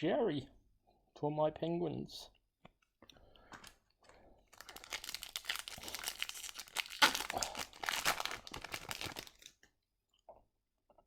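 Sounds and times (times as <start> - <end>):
plastic wrapper crinkling and tearing: 4.5 - 9.7.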